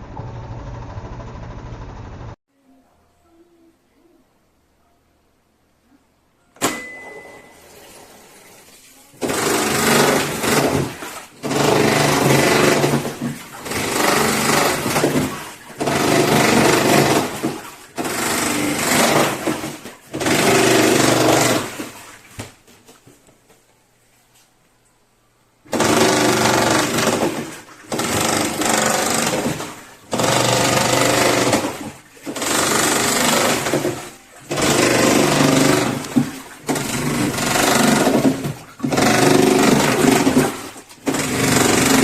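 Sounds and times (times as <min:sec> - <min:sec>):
washing machine beep: 0:06.4 - 0:08.5
washing machine churning: 0:06.6 - 0:22.5, 0:25.6 - 0:42.0.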